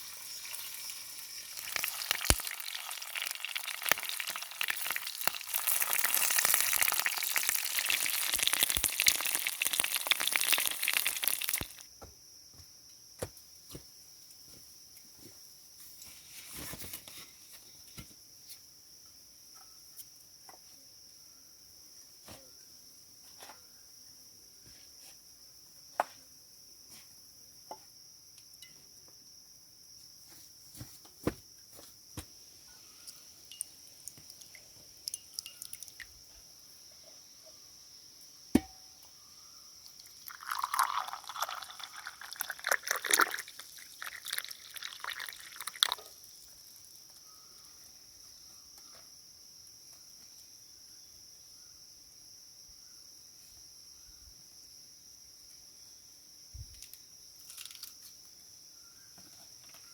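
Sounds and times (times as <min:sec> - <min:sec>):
loud frying sizzle: 0:00.0 - 0:11.8
high insect chirring: 0:00.0 - 0:11.9, 0:32.8 - 0:49.0
small clicks and knocks: 0:56.7 - 0:58.1.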